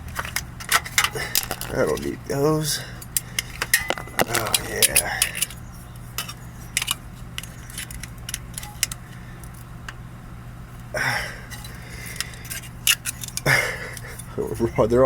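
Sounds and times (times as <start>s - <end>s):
low steady hum: 0.0s - 15.0s
metal hand tools clinking: 0.1s - 5.6s, 11.5s - 15.0s.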